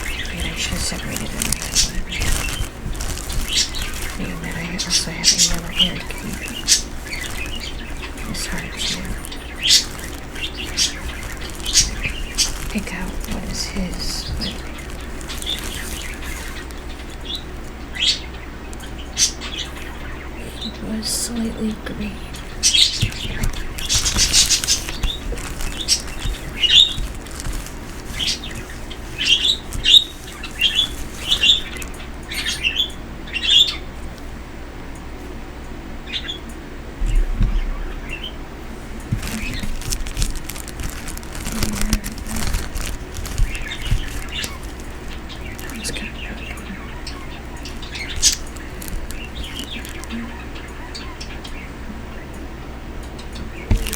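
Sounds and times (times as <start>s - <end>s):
light clicks and rustles: 0.0s - 18.1s, 22.3s - 32.8s, 38.8s - 50.8s, 53.4s - 53.9s
pet birds chirping: 0.0s - 33.9s, 39.0s - 52.4s, 53.3s - 53.9s.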